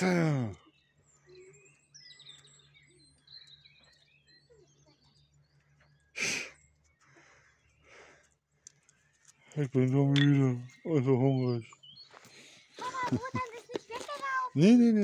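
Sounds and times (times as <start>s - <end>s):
small birds chirping: 0.0s - 15.0s
loud breathy puff: 6.2s - 6.6s.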